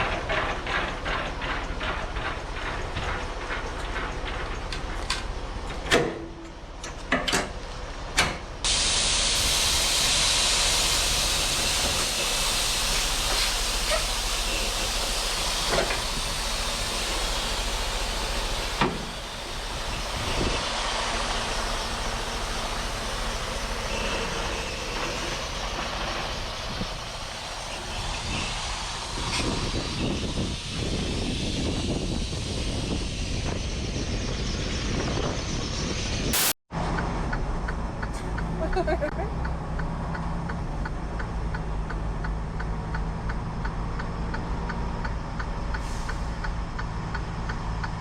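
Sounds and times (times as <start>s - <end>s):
truck air hiss: 8.7s - 33.8s, 36.3s - 36.6s, 45.7s - 46.6s.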